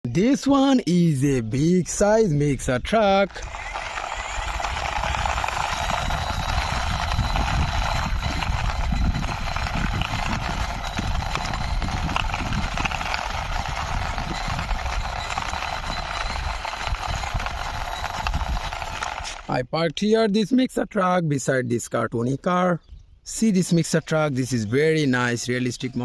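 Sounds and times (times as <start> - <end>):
toy truck wheels rolling: 3.0 - 19.6, 24.4 - 26.0.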